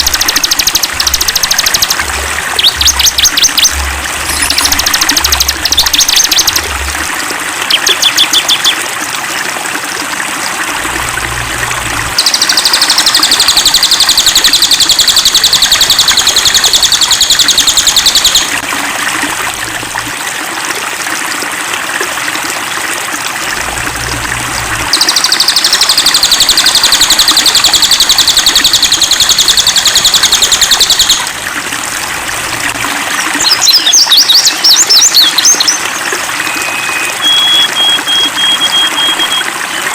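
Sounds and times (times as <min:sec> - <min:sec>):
songbird trilling and chirping: 0:00.0 - 0:06.6
stream water trickling: 0:00.0 - 0:39.9.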